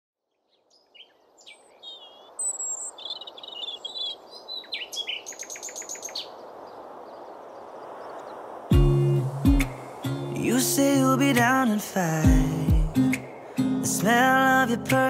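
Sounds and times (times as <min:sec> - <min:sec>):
outdoor background hiss: 0:00.2 - 0:15.0
birds singing and chirping: 0:00.4 - 0:11.5.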